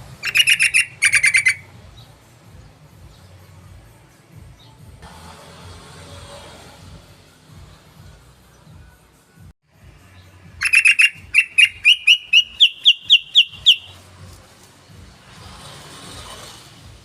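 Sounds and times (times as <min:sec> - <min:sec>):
bird sharp rising chirps: 0:00.2 - 0:01.7, 0:10.6 - 0:14.0.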